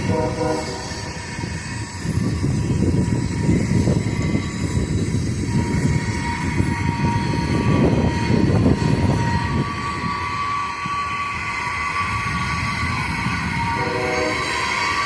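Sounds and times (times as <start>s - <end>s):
faint train horn: 0.0s - 1.2s, 13.6s - 15.0s
distant train rumble: 0.0s - 15.0s.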